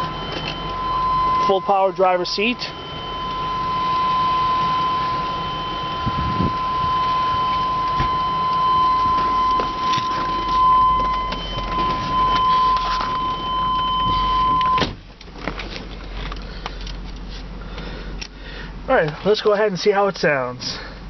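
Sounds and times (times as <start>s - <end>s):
high-pitched warning buzz: 0.0s - 15.0s
car engine idling: 0.0s - 21.0s.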